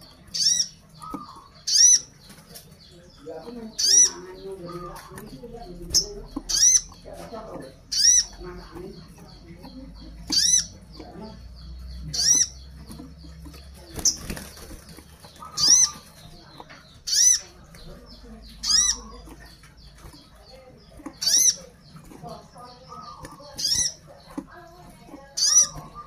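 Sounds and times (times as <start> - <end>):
caged bird calling: 0.0 - 26.0
wings fluttering: 12.0 - 26.0.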